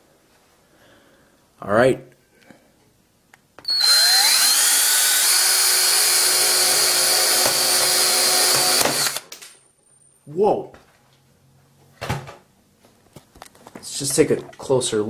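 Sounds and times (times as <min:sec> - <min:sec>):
cordless drill whine: 0:03.6 - 0:09.2.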